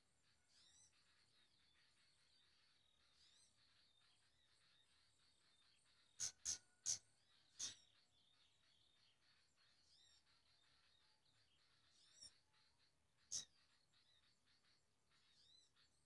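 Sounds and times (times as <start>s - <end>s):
faint thin bird calls: 5.7s - 8.1s, 9.1s - 16.0s.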